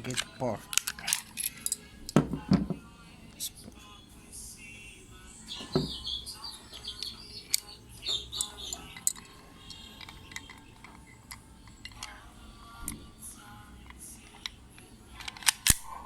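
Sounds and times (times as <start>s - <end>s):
small metal parts clicking and scraping: 0.0s - 2.2s, 6.8s - 12.2s, 15.2s - 15.8s.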